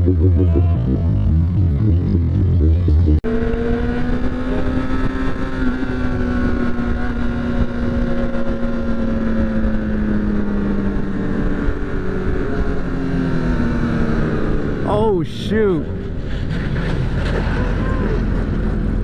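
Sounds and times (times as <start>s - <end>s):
motorcycle engine cruising: 0.0s - 15.2s
wind rushing over microphone: 3.3s - 14.8s.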